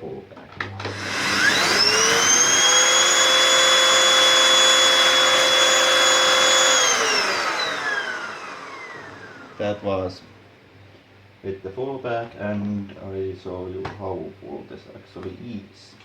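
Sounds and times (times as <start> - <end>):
vacuum cleaner whine: 0.6 - 10.2.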